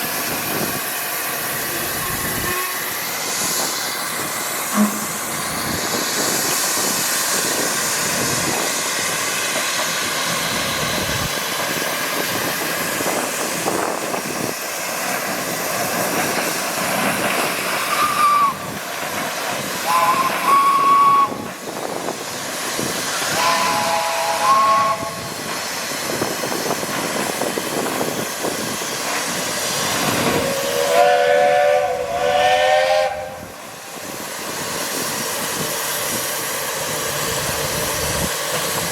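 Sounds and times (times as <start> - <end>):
steam engines hissing: 0.0 - 38.9
steam whistle chord blasts: 1.7 - 3.0, 4.7 - 5.4, 18.0 - 18.6, 19.8 - 21.4, 23.2 - 25.2, 30.5 - 33.6.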